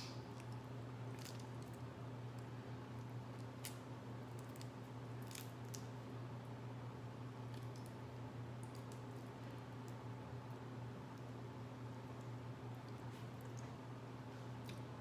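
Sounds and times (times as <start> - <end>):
low electrical hum: 0.0 - 15.0
seafood shells clicking and snapping: 3.4 - 5.9.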